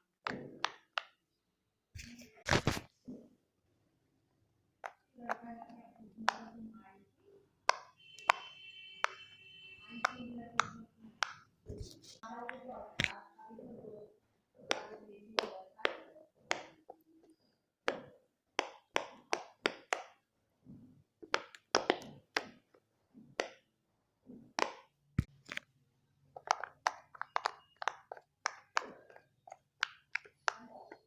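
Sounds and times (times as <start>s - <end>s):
fidget toy bubbles popping: 26.3s - 31.0s.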